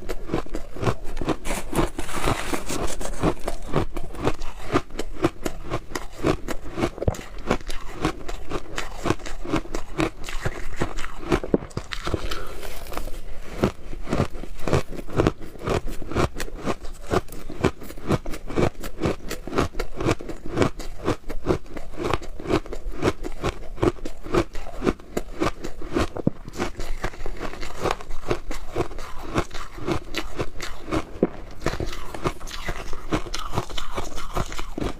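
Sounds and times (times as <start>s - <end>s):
crunching of ice being chewed: 0.0s - 34.9s.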